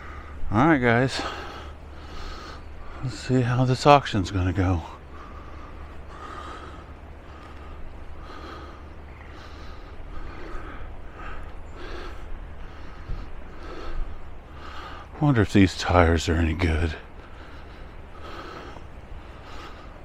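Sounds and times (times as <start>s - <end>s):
low steady rumble: 0.0s - 20.0s
person breathing: 5.0s - 15.2s, 17.0s - 20.0s.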